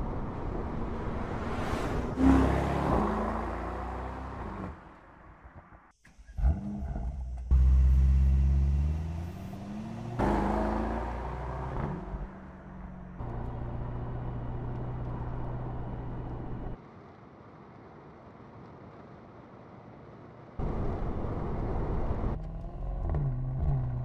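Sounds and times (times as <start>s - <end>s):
car engine revving: 0.6s - 4.8s, 6.2s - 16.8s.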